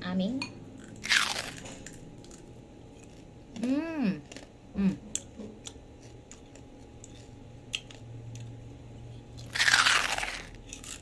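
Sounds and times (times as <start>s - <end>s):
loud crunch of crisp skin: 1.0s - 2.4s, 9.4s - 11.0s.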